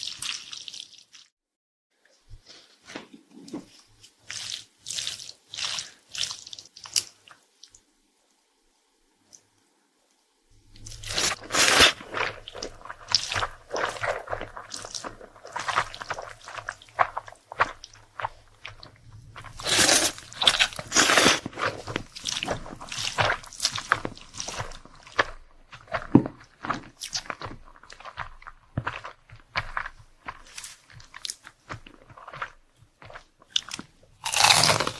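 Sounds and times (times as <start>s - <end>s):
crunching and chewing crisp food: 4.2s - 7.8s, 10.6s - 34.9s.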